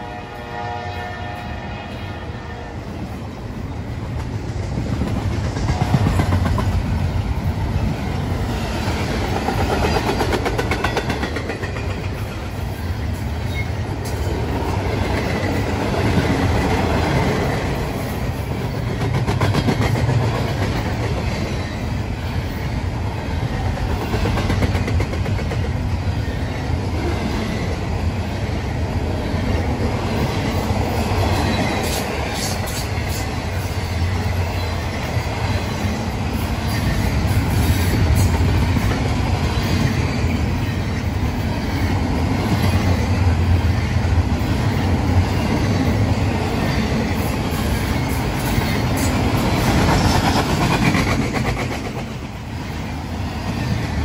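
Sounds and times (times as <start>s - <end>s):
freight train rolling past: 0.0s - 54.0s
steel wheels clattering on rail: 4.0s - 54.0s.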